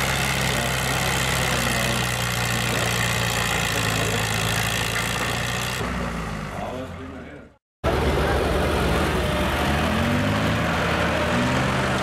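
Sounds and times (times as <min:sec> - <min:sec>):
tractor engine running: 0:00.0 - 0:06.8.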